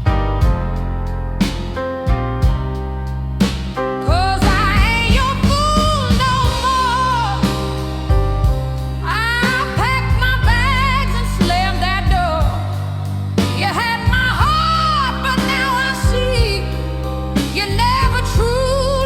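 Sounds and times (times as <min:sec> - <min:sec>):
blues band accompaniment: 0:00.0 - 0:19.0
person singing with vibrato: 0:04.1 - 0:07.8.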